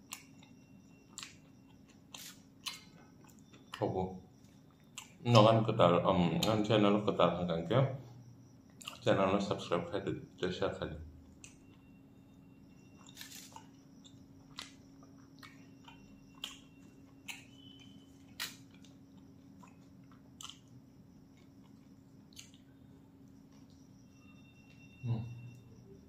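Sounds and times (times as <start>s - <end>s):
person chewing food: 0.0s - 5.3s, 13.0s - 24.0s
wet mouth clicks and smacks: 19.6s - 20.7s.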